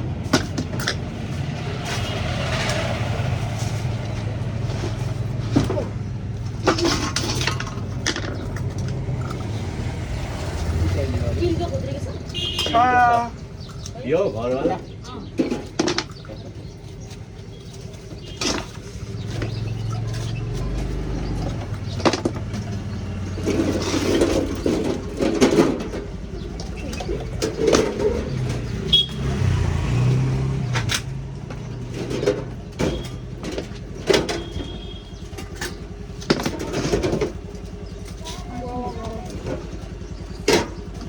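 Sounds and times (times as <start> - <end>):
vehicle engine running: 0.0 - 41.0
faint voices: 38.0 - 40.2.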